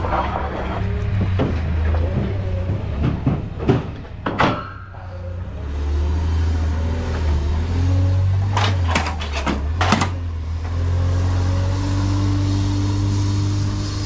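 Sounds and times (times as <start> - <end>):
engine humming: 0.0 - 14.0
sharp clunks and knocks: 1.1 - 4.7, 8.4 - 10.2.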